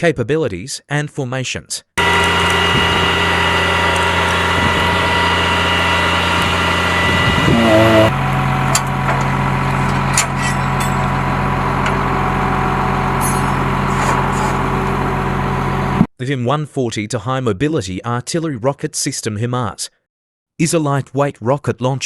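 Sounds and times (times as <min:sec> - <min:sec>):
truck engine idling: 0:02.0 - 0:16.0.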